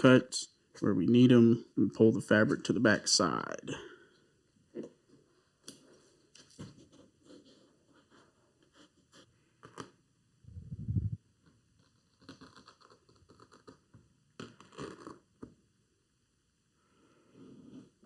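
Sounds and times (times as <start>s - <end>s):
low rumbling bump: 10.5s - 11.2s.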